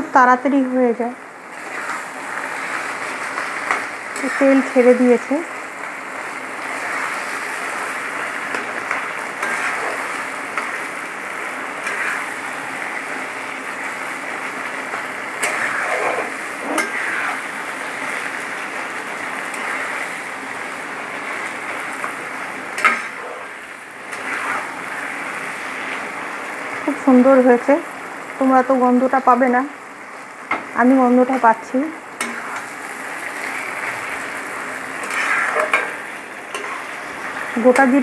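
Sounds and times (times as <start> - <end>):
food sizzling in oil: 0.0 - 38.0
spatula scraping a wok: 1.6 - 5.3, 6.6 - 10.9, 11.6 - 13.0, 14.9 - 18.3, 19.4 - 20.2, 21.2 - 26.1, 32.2 - 38.0.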